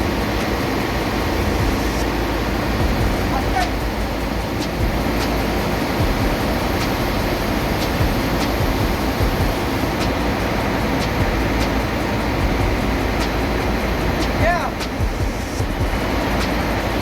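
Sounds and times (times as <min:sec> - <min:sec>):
sharp ticks: 0:00.0 - 0:17.0
ship engine-room machinery: 0:00.0 - 0:17.0.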